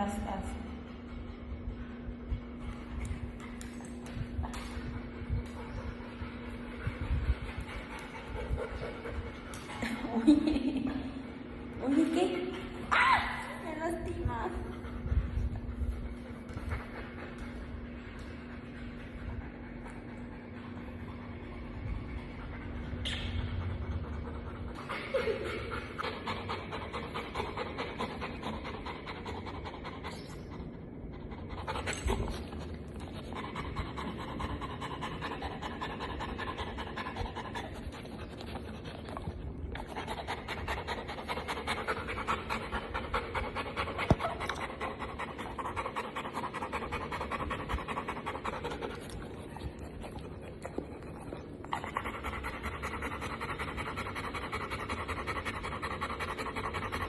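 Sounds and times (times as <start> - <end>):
dog panting: 0.0 - 10.1, 23.6 - 57.0.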